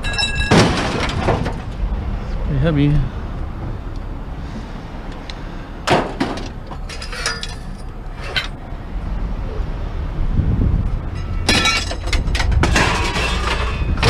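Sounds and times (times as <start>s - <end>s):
scrap metal clinking and clattering: 0.0s - 1.7s, 5.9s - 8.6s, 11.1s - 14.0s
low rumble: 7.8s - 14.0s.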